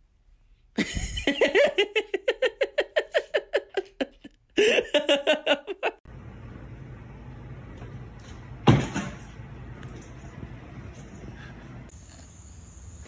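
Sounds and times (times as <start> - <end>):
person laughing hard: 0.8 - 6.0.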